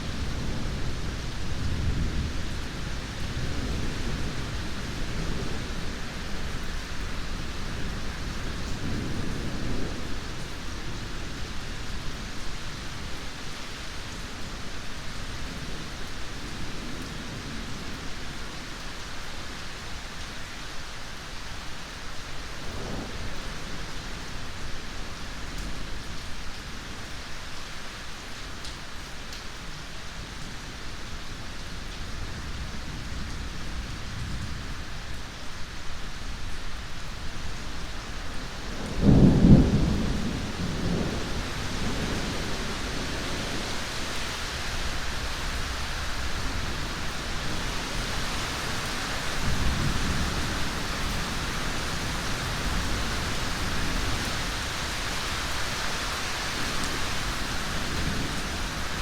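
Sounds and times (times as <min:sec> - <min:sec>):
heavy rain: 0:00.0 - 0:59.0
soft roll of thunder: 0:22.5 - 0:27.0, 0:38.2 - 0:55.6
thunder clap and rumble: 0:38.6 - 0:44.1.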